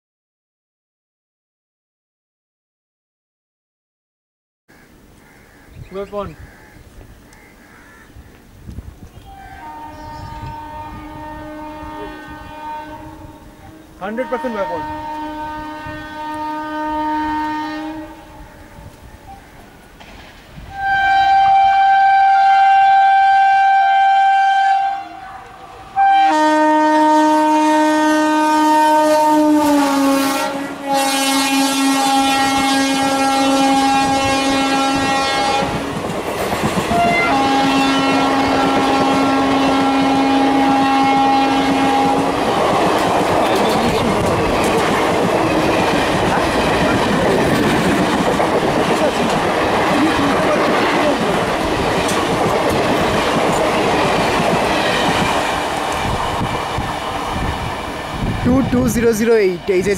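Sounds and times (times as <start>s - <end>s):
train coaches rolling past: 8.4s - 59.9s
locomotive horn blasts: 9.3s - 19.0s, 20.7s - 35.8s, 36.9s - 42.3s.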